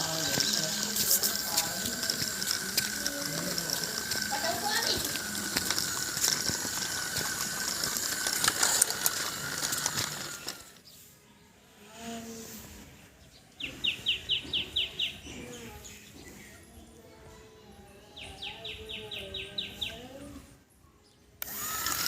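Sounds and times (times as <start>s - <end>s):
gear clatter: 0.0s - 10.8s
toy gear motors whining: 0.0s - 10.9s, 21.4s - 22.0s
bird chirping: 13.2s - 16.8s.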